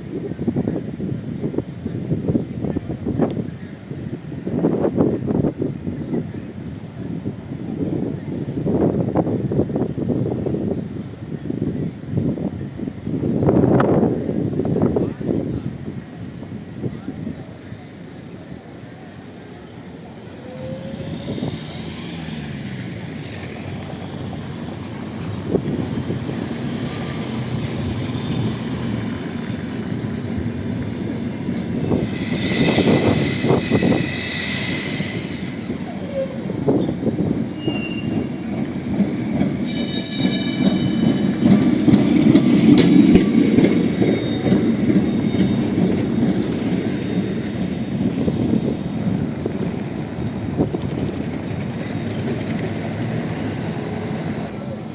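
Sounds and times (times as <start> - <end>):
tram rumbling on rails: 0.0 - 54.9
steel wheels squealing: 31.6 - 49.6, 50.8 - 54.9.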